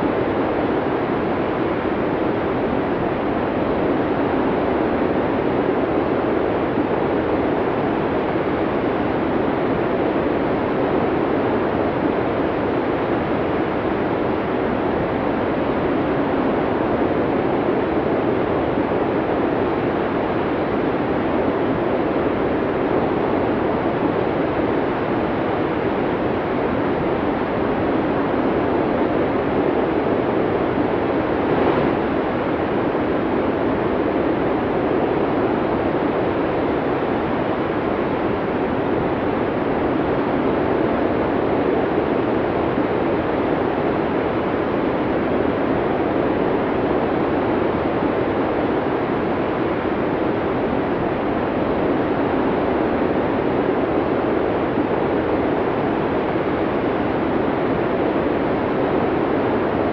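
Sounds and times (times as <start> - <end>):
strong wind blowing: 27.4 - 44.2.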